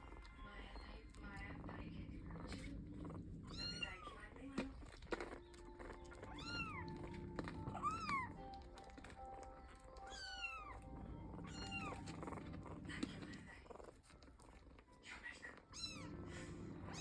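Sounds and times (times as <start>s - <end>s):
kitten meowing: 3.4s - 4.4s, 6.1s - 8.5s, 9.8s - 12.2s, 15.6s - 16.1s.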